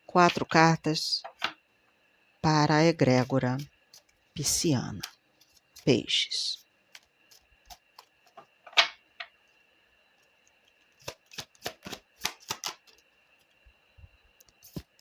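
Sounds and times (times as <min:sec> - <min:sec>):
cards snapping while shuffled: 0:11.0 - 0:13.0.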